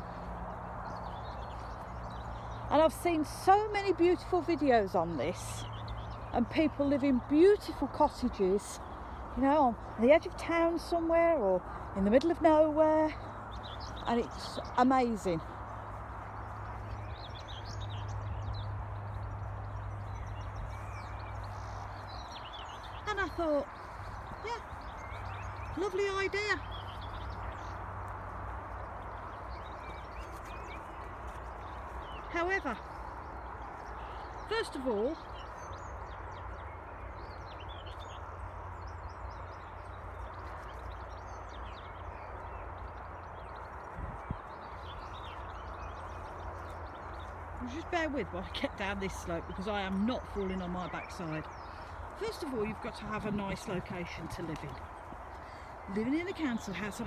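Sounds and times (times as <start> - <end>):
wild birds chirping and twittering: 0.0 - 57.0.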